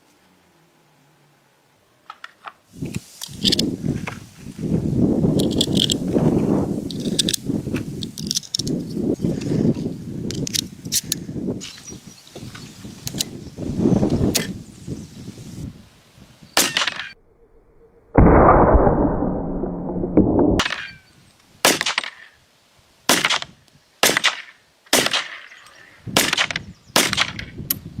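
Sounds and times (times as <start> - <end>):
loud rushing noise: 17.1 - 20.6.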